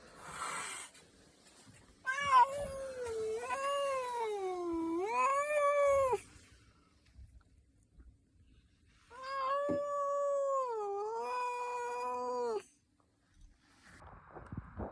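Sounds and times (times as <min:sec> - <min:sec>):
angry cat yowling: 0:02.1 - 0:06.2, 0:09.1 - 0:12.7
brief rush of noise: 0:13.8 - 0:14.9.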